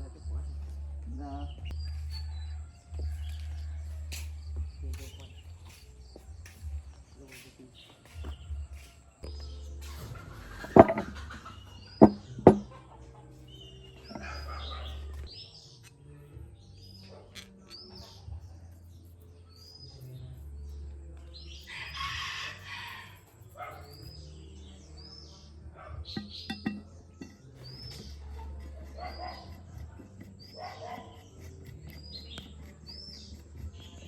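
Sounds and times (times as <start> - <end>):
sharp knocks: 12.0 - 12.7.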